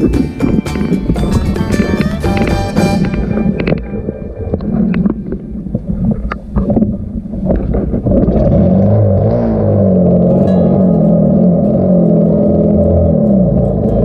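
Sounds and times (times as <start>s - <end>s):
motorcycle engine running: 0.0s - 4.0s, 9.7s - 14.0s
low hum: 0.0s - 14.0s
wind buffeting microphone: 0.0s - 14.0s.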